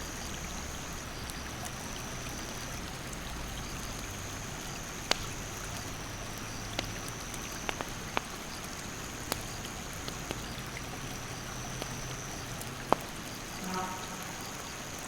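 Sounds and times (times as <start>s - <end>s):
stream rushing: 0.0s - 15.0s
wood fire crackling and popping: 4.5s - 13.5s.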